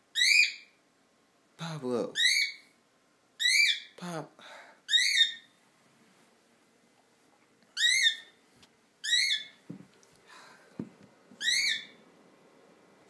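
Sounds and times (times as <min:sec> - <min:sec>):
cockatiel shrill calls: 0:00.1 - 0:00.7, 0:02.2 - 0:02.6, 0:03.4 - 0:03.9, 0:04.9 - 0:05.5, 0:07.8 - 0:08.3, 0:09.0 - 0:09.6, 0:11.4 - 0:12.0.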